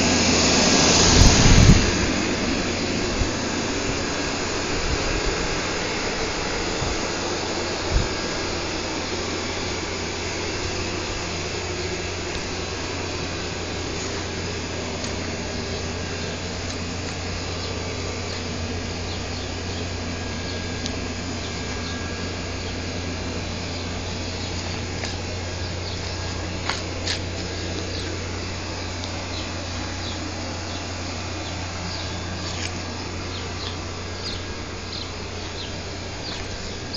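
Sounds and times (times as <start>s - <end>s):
mechanical drone: 0.0s - 36.9s.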